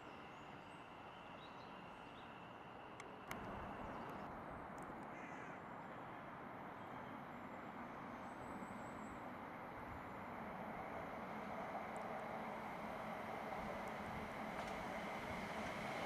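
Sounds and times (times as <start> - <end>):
crow cawing: 5.1 - 5.6.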